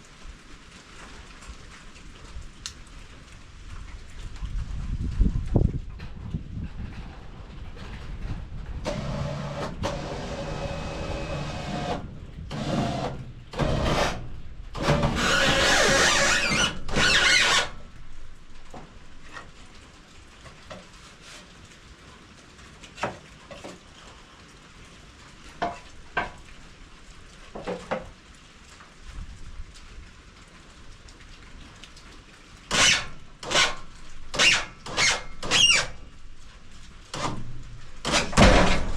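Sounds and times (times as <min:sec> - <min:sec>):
noisy sawing bursts: 0:08.8 - 0:18.0, 0:32.7 - 0:36.1, 0:37.1 - 0:38.9
band sawmill humming: 0:08.9 - 0:18.0.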